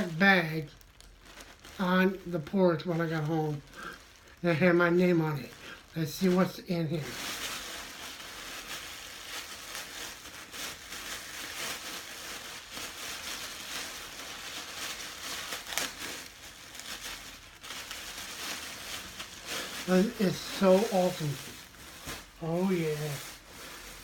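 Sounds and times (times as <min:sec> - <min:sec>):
bag rustling and crinkling: 0:00.0 - 0:24.0.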